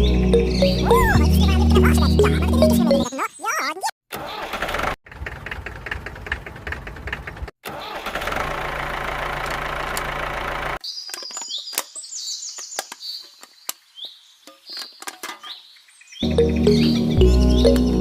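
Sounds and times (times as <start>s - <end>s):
high bird chirps: 0.0s - 3.7s, 14.0s - 18.0s
small engine running: 8.0s - 10.8s.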